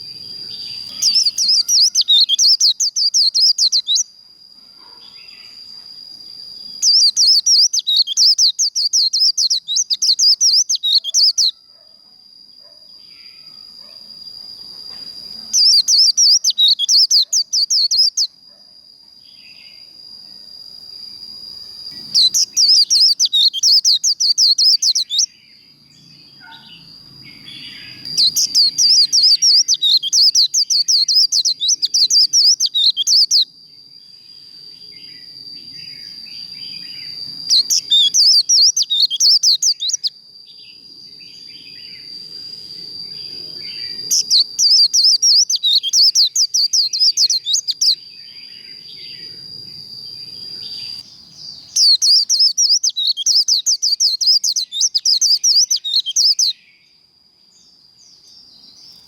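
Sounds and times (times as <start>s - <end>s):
birds singing tumbling song: 0.0s - 4.1s, 6.4s - 11.5s, 14.6s - 18.3s, 21.6s - 33.4s, 35.0s - 40.1s, 43.0s - 57.0s
soft bird chirps: 0.0s - 4.1s, 4.8s - 11.9s, 12.6s - 18.4s, 21.5s - 33.5s, 34.9s - 59.0s
thin steady high tone: 0.0s - 57.1s.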